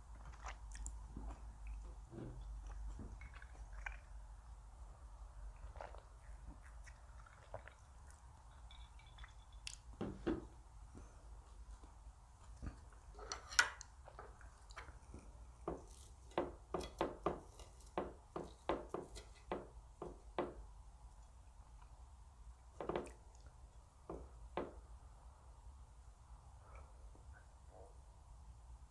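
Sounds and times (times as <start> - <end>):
utensils clinking on dishes: 8.6 - 9.8.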